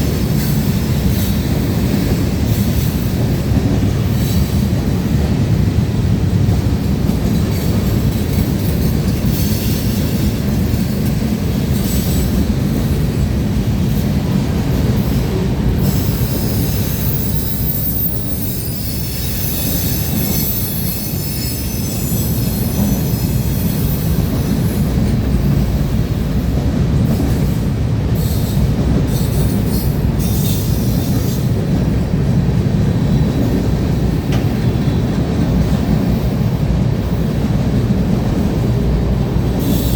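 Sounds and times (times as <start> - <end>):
train cars clanking: 0.0 - 39.9
train wheels rumbling and clattering: 0.0 - 39.9
high-pitched wheel squeal: 15.8 - 24.2.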